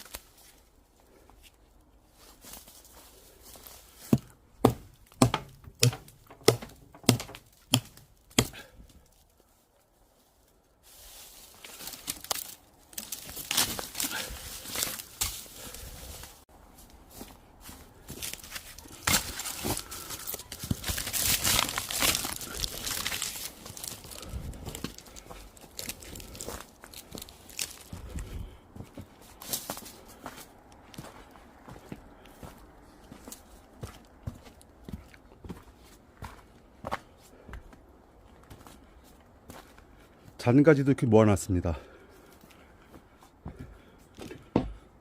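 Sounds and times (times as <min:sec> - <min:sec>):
dry twigs crackling and snapping: 0:00.0 - 0:00.8, 0:03.7 - 0:17.0, 0:17.6 - 0:28.6
axe chopping wood: 0:04.1 - 0:08.8, 0:18.2 - 0:23.3.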